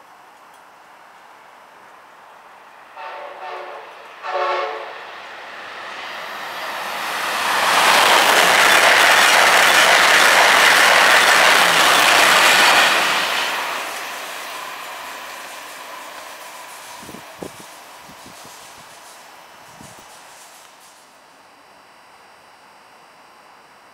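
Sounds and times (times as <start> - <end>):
train rushing past: 2.5 - 21.0
train horn blasts: 2.9 - 5.1.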